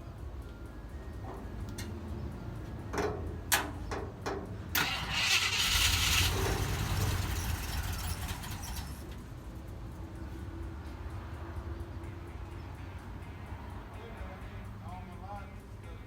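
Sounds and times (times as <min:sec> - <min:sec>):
vehicle engine running: 0:04.8 - 0:10.3.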